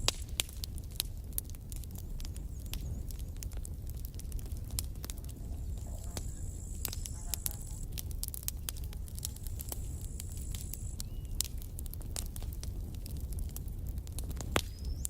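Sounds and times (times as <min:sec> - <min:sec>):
campfire crackling: 0:00.0 - 0:15.0
faint high whine: 0:05.3 - 0:08.0, 0:08.9 - 0:11.4.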